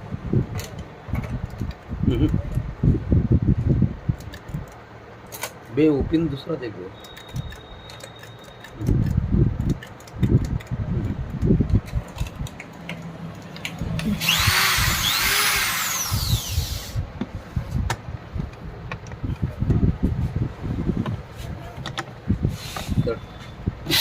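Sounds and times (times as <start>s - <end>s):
handling clicks and knocks: 6.9s - 14.1s, 21.0s - 22.2s
small power tool motor whining: 14.0s - 17.0s.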